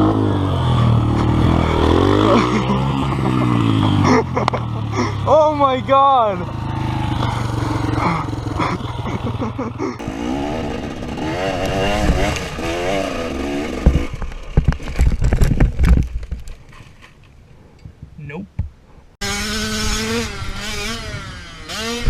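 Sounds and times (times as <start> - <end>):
dirt bike engine revving: 0.0 - 14.3, 19.2 - 22.0.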